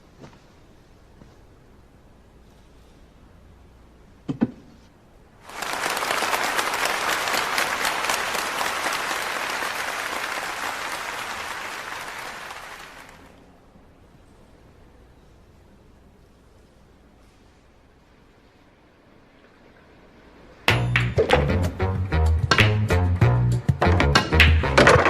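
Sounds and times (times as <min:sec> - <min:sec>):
audience applauding: 0:05.4 - 0:13.4
billiard balls clicking: 0:23.9 - 0:25.0.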